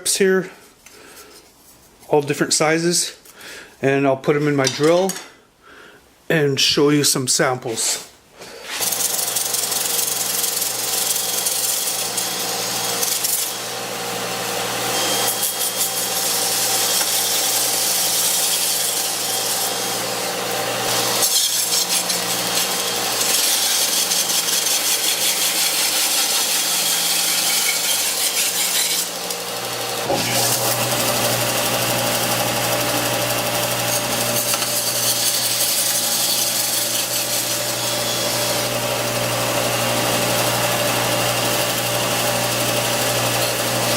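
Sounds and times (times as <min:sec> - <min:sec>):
belt sander running: 0:08.8 - 0:43.9.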